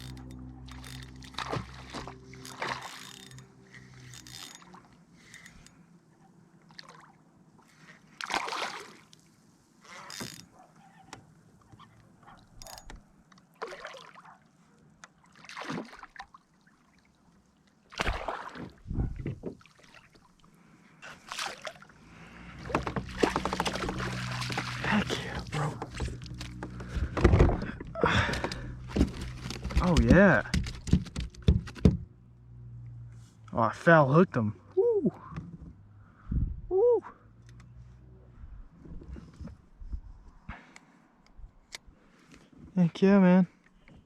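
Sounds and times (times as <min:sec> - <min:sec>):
water splashing around kayak: 0:00.0 - 0:05.3, 0:06.6 - 0:10.1, 0:13.4 - 0:30.1.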